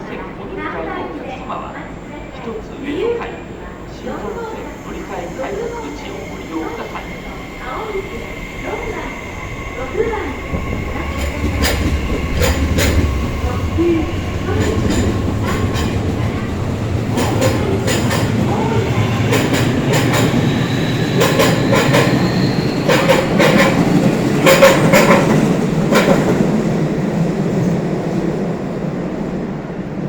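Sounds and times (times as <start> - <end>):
train running rumble: 1.9 - 30.0
train wheels clicking over rail joints: 9.6 - 26.6.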